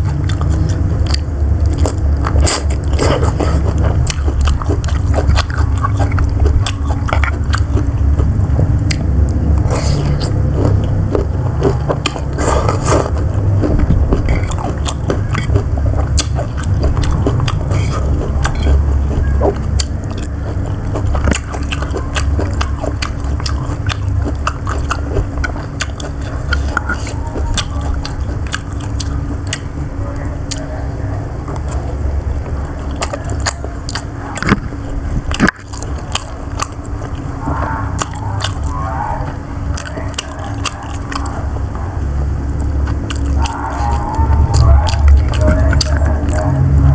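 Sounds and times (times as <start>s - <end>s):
wet mouth clicks and smacks: 0.0s - 18.8s
close chewing and biting: 0.0s - 46.9s
steady low rumble: 0.0s - 46.9s.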